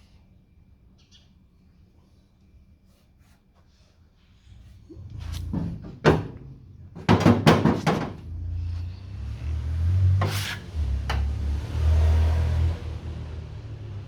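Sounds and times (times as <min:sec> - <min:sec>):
tools knocking on car panel: 0:05.6 - 0:08.2.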